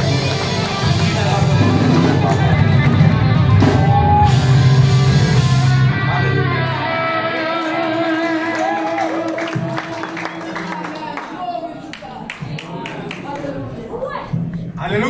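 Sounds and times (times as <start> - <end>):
sliding electric guitar notes: 0.0 - 8.9
worship band music: 0.0 - 11.4.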